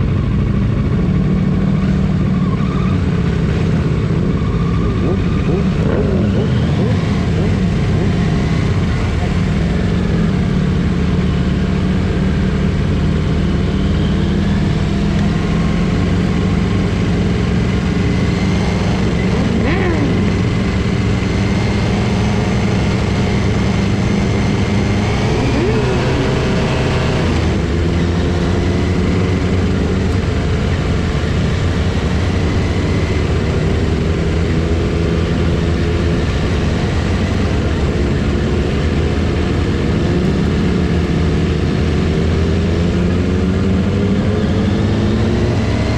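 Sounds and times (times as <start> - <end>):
motorcycle engines running: 0.0 - 45.9.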